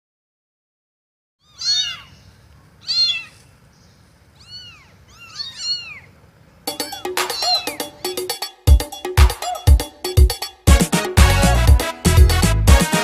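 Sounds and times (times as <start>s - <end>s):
cat meowing: 1.4s - 3.5s, 4.4s - 8.0s.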